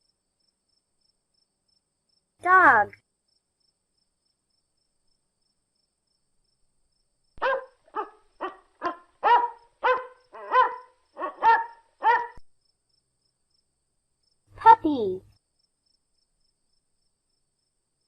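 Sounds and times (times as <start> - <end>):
dog barking: 7.4 - 12.4.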